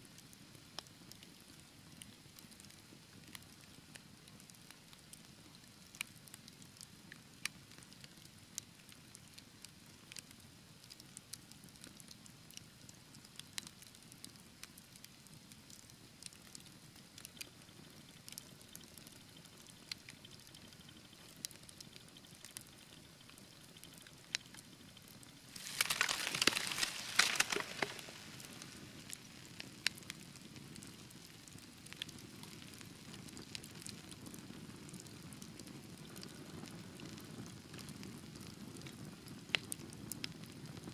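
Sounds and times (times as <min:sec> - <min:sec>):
fireplace fire crackling and popping: 0:25.4 - 0:40.9.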